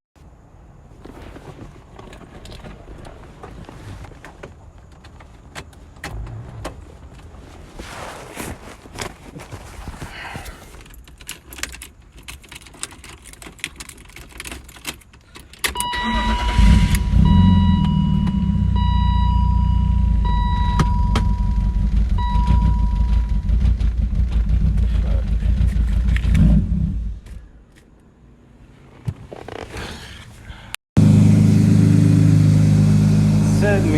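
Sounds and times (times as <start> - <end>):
keys jingling: 10.8 - 16.0
car engine starting: 15.6 - 27.4, 31.0 - 33.9
high tone: 15.8 - 23.7.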